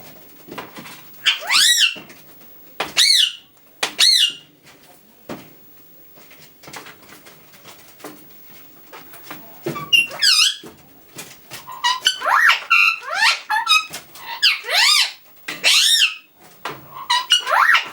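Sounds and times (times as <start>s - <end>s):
parakeet squawking: 1.2s - 2.0s, 3.0s - 4.4s, 9.8s - 10.6s, 11.7s - 16.3s, 17.0s - 17.9s.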